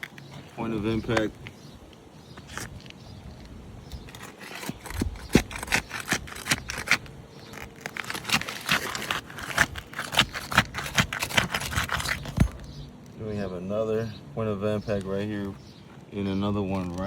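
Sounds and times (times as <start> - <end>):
shingles scraping and clicking: 2.3 - 12.8.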